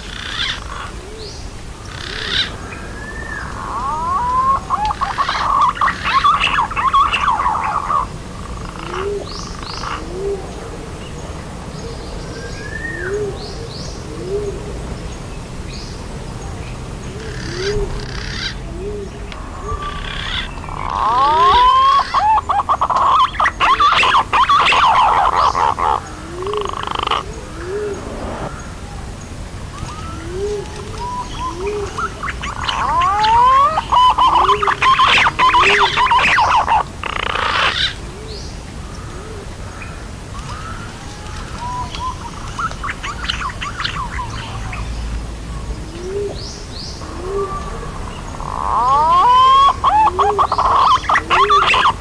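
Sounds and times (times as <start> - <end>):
pigeon warbling whistled calls: 2.2 - 8.1, 19.8 - 28.7, 29.7 - 38.0, 47.0 - 52.0
short low rising notes: 26.3 - 29.2.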